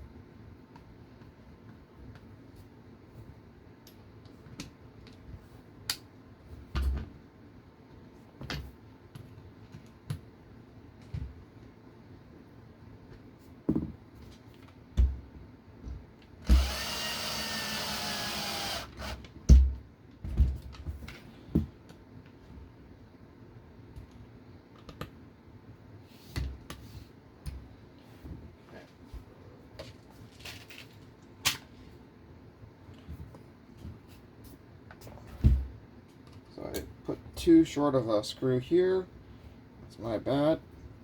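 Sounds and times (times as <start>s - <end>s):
electric screwdriver running: 16.5s - 19.2s.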